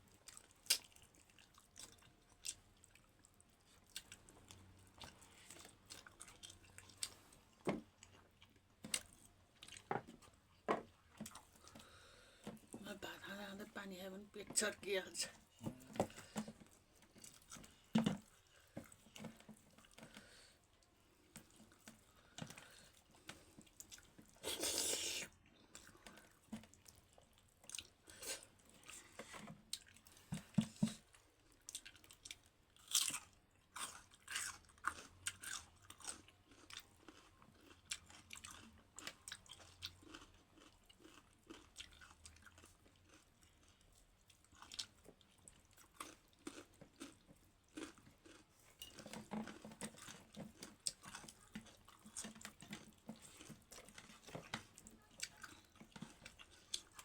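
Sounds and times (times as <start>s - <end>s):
chewing and crunching food: 0.0s - 57.0s.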